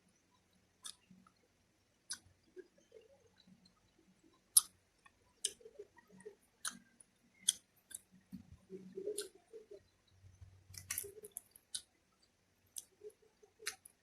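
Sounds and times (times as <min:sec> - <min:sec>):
person chewing food: 0:05.4 - 0:05.6, 0:07.5 - 0:08.1, 0:09.0 - 0:09.4, 0:10.7 - 0:11.9, 0:12.7 - 0:14.0.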